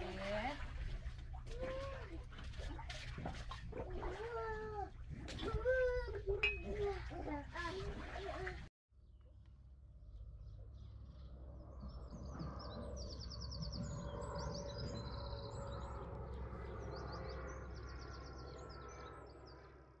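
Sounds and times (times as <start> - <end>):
songbirds singing: 10.1 - 19.7.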